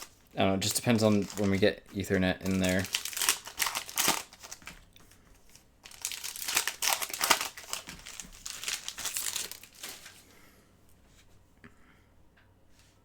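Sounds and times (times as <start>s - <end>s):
wrapper crinkling: 0.0s - 4.9s, 5.5s - 10.2s.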